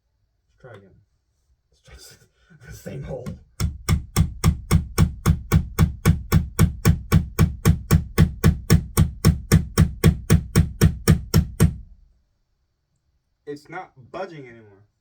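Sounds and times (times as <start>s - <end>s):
hammer driving nail into wall: 3.3s - 12.0s.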